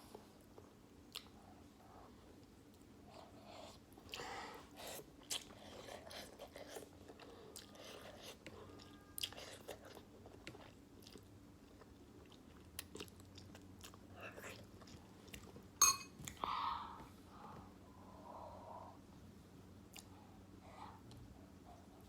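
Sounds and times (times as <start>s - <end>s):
person chewing noodles: 3.1s - 15.6s, 19.9s - 20.2s.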